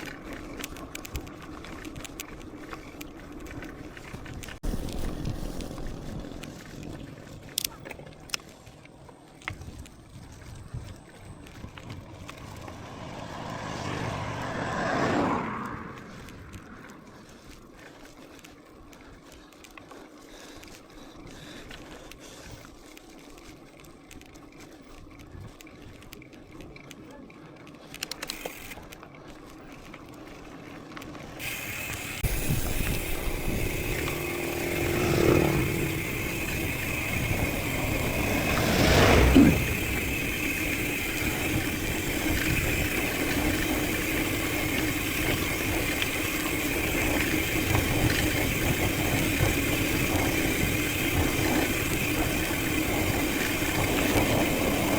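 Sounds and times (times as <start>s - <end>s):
bicycle tyres rolling: 0.0s - 54.9s
motor vehicle passing: 11.1s - 17.9s, 29.7s - 54.9s.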